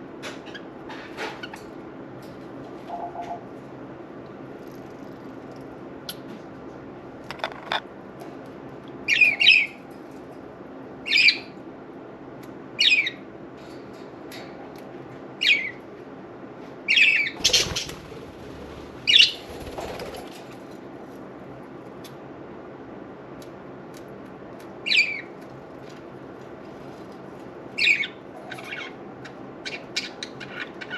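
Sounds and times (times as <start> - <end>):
steady low hum: 0.0 - 30.9
wings fluttering: 17.4 - 20.8.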